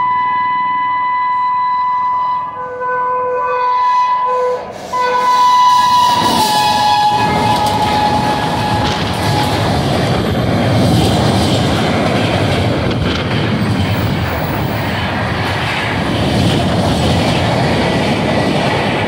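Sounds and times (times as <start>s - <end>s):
train horn blasts: 0.0s - 9.8s
train coaches rushing by: 2.5s - 19.0s.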